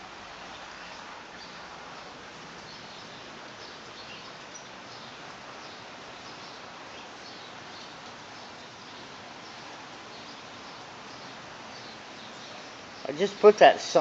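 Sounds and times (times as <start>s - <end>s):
light rain hissing: 0.0s - 14.0s.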